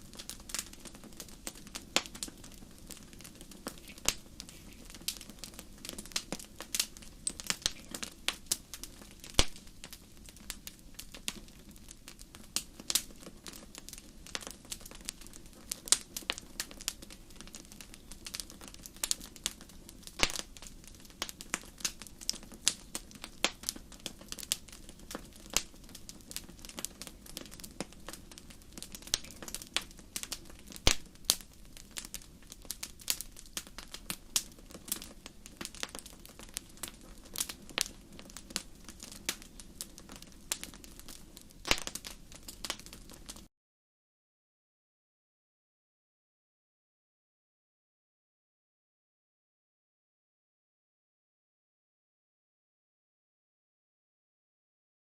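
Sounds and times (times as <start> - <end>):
wood fire crackling: 0.0 - 43.5.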